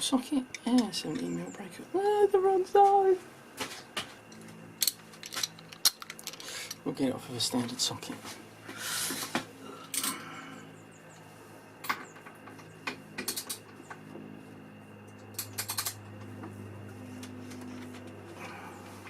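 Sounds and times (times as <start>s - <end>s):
metal tools clinking: 0.5s - 1.5s, 4.8s - 6.9s
sharp metal clicks: 15.3s - 16.0s.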